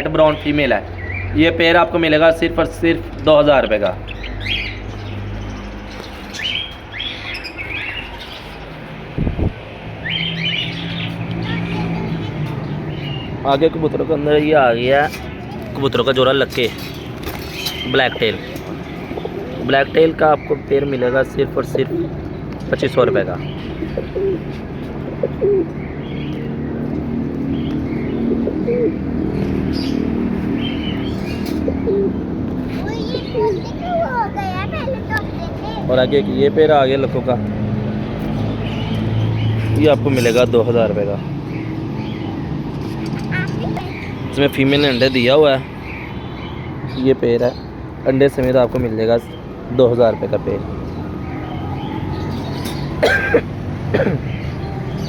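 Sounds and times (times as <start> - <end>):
cage birds chirping: 0.0 - 55.0
short low thud: 9.2 - 9.6
pigeons cooing: 14.4 - 22.5, 23.4 - 26.4, 27.5 - 35.9, 51.2 - 55.0.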